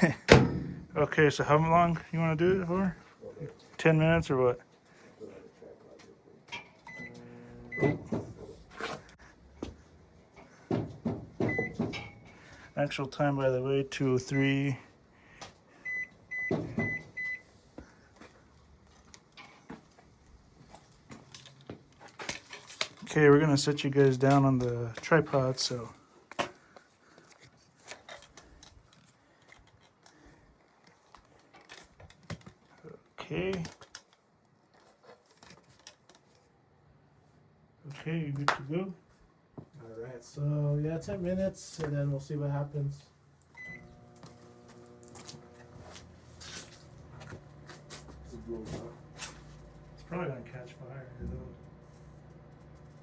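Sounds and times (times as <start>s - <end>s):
microwave keypad beep: 6.9s - 8.0s, 11.5s - 11.8s, 15.9s - 17.4s, 43.6s - 43.9s
microwave humming: 6.9s - 8.2s, 43.6s - 53.0s.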